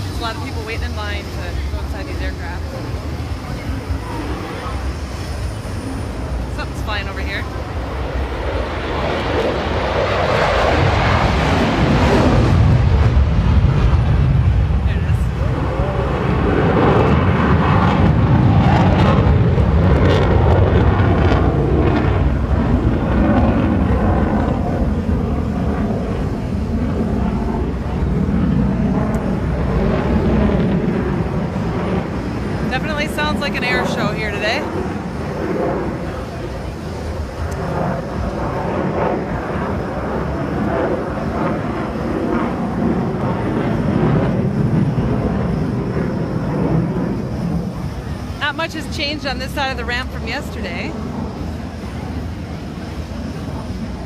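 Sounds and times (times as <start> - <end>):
airplane engine flying overhead: 0.0 - 54.0.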